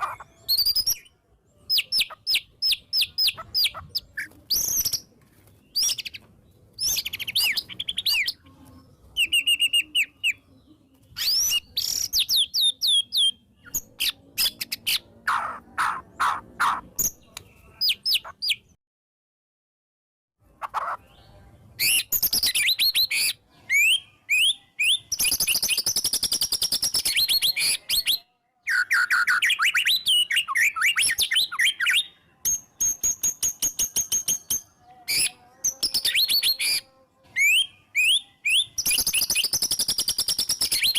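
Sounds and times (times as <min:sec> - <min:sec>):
bird singing whistles and trills: 0:00.0 - 0:05.1, 0:06.8 - 0:08.4, 0:09.2 - 0:10.4, 0:11.2 - 0:15.0, 0:21.8 - 0:40.9.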